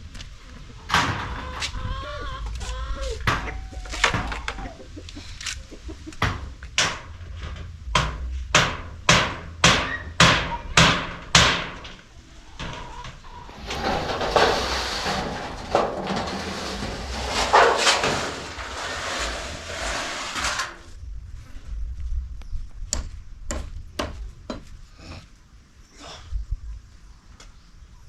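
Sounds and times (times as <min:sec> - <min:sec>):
rough scraping rustling: 0:11.6 - 0:21.0.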